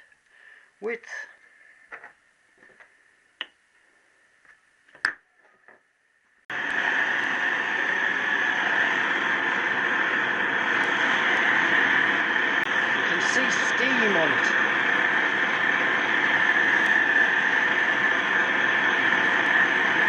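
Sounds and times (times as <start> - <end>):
heating torch hissing: 6.5 - 20.0.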